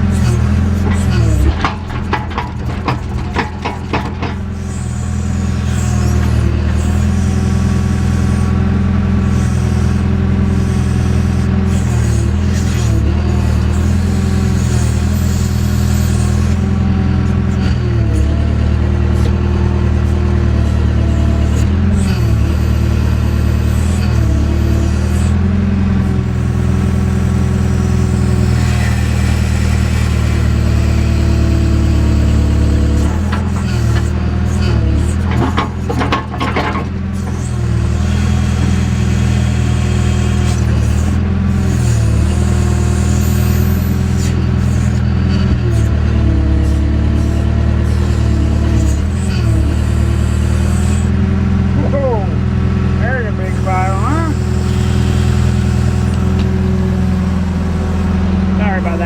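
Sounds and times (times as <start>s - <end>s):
backhoe diesel engine running: 0.0s - 59.0s.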